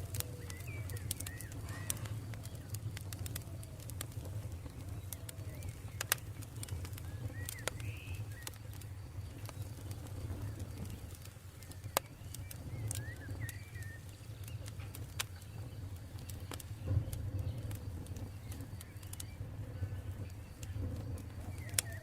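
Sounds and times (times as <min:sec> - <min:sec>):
campfire crackling: 0:00.0 - 0:22.0
low steady rumble: 0:00.0 - 0:22.0
bird chirps: 0:00.2 - 0:02.8, 0:04.7 - 0:08.8, 0:09.4 - 0:14.7.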